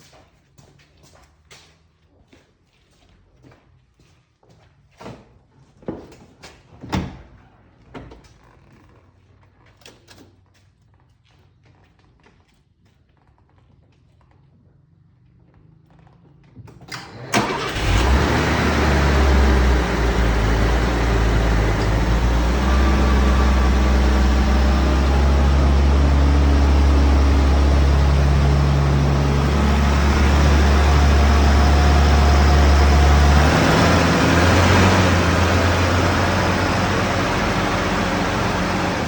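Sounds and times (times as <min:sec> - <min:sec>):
car engine starting and idling: 0:16.9 - 0:39.0.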